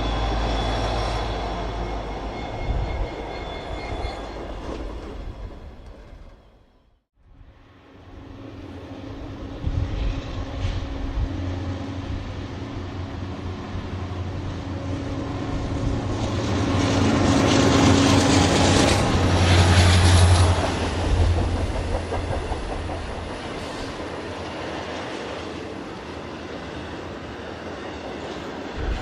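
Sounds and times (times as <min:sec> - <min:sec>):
locomotive engine drone: 0:00.0 - 0:06.7, 0:07.4 - 0:29.0
train wheels clickety-clack: 0:16.1 - 0:25.7.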